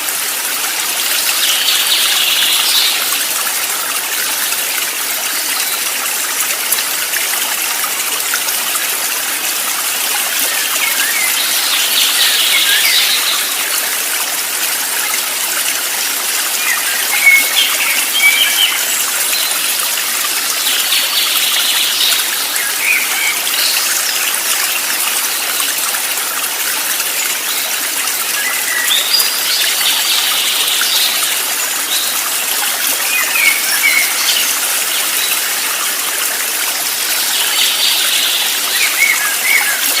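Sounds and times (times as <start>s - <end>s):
running water: 0.0s - 40.0s
small birds chirping: 10.2s - 13.8s, 16.5s - 25.0s.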